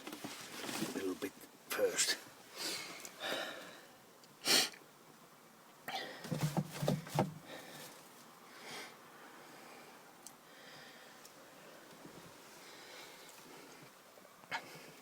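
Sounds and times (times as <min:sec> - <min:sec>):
short rustles: 0:06.2 - 0:08.1
knocks: 0:06.3 - 0:07.4.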